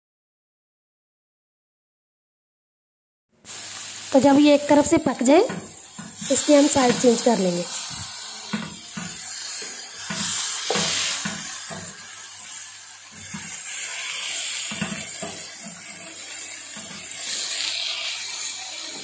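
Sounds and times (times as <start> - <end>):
meat sizzling in oil: 3.5 - 19.0
spatula knocking and scraping pan: 5.3 - 12.1, 13.1 - 13.7, 14.5 - 16.1, 16.7 - 17.2.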